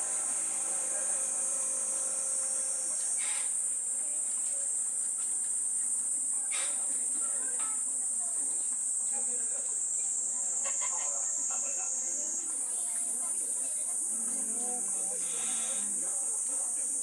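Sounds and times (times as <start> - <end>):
faint short bursts of noise: 0.0 - 3.8
crickets trilling: 0.0 - 17.0.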